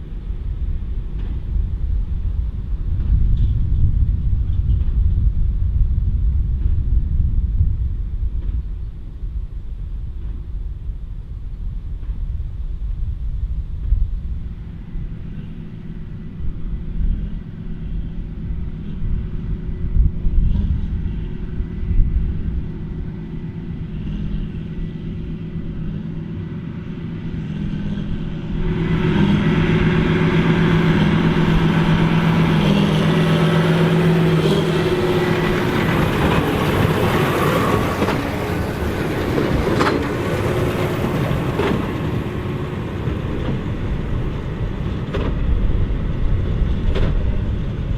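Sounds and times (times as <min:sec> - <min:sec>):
tractor diesel engine running: 0:14.3 - 0:47.9.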